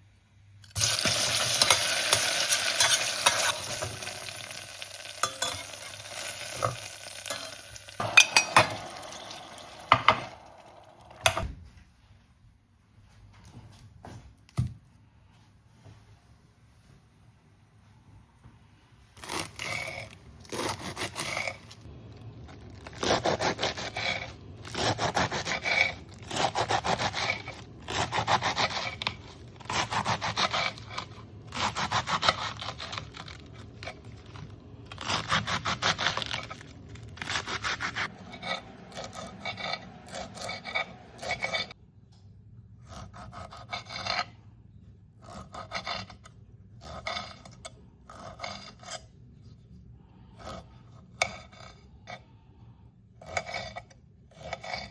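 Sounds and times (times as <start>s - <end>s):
rasping scraping strokes: 23.0s - 41.8s.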